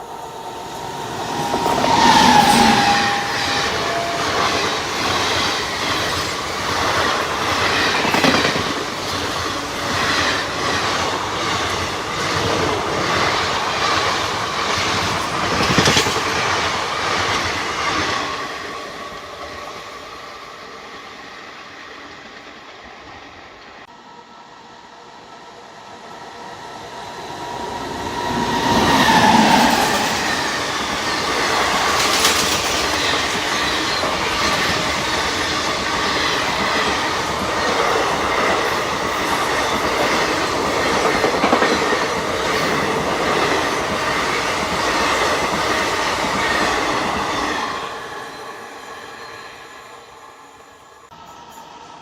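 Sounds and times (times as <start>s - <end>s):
locomotive passing: 0.0s - 9.8s, 26.5s - 47.7s
wheel squeal: 1.3s - 4.8s
train wheels clattering: 28.9s - 47.2s.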